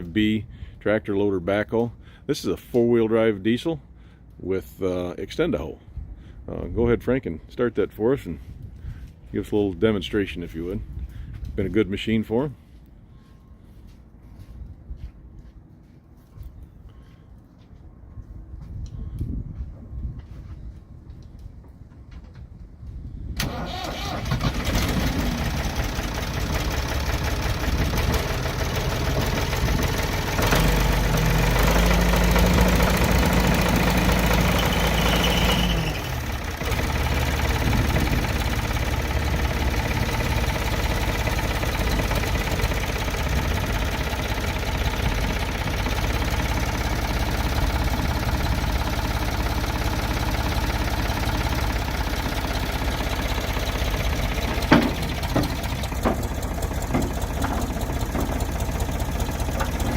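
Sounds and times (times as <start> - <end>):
diesel engine clattering: 23.4 - 59.9.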